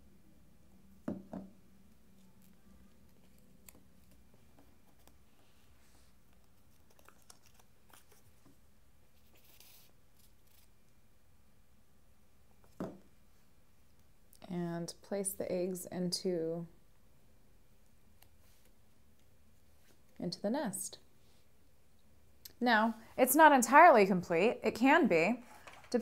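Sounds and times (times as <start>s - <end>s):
paper rustling: 6.4s - 8.5s.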